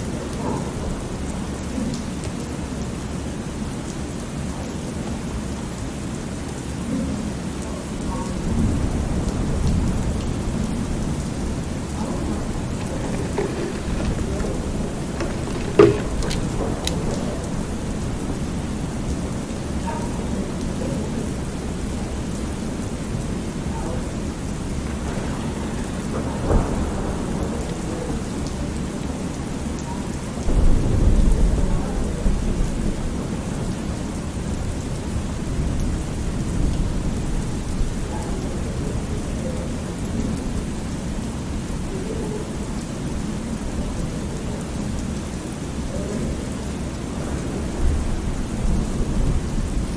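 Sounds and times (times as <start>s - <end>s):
steady rain: 0.0s - 49.9s
rolling thunder: 20.5s - 28.9s, 30.5s - 33.7s.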